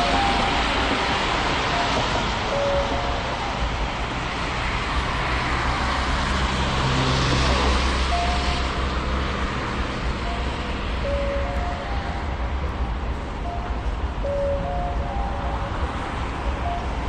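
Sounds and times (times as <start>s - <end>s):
road noise: 0.0s - 17.0s
vehicle passing by: 4.2s - 12.6s.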